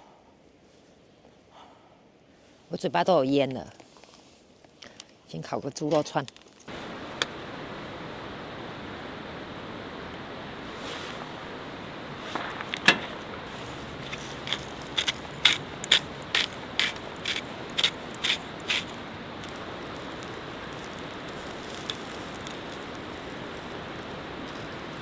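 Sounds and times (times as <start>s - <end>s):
stream water rushing: 6.7s - 21.1s
scissors snipping plastic packaging: 12.7s - 19.6s.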